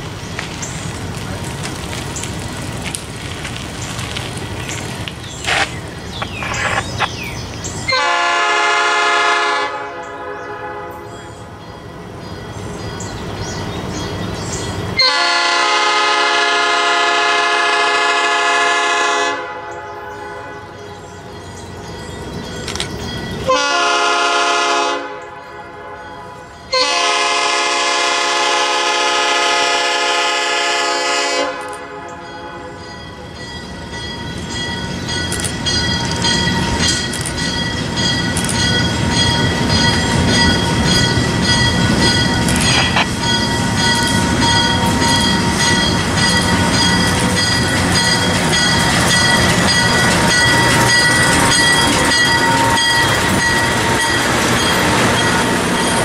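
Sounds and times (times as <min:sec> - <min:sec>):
train engine and wheels passing: 0:00.0 - 0:56.0
locomotive air horn blasts: 0:07.9 - 0:11.2, 0:15.0 - 0:20.7, 0:23.5 - 0:32.8.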